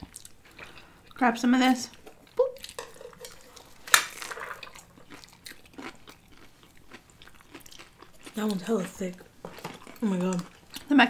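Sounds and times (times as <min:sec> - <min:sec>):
food crunch: 0:01.9 - 0:11.0
chewing: 0:04.4 - 0:11.0.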